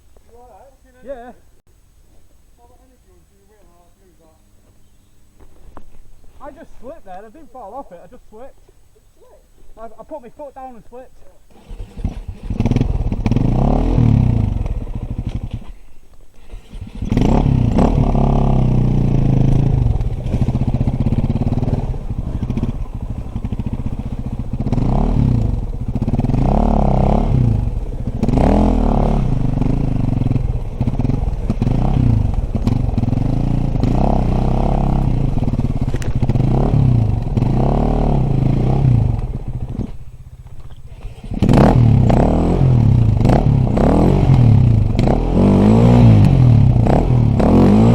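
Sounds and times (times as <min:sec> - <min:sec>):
dirt bike engine revving: 0:11.5 - 0:47.9.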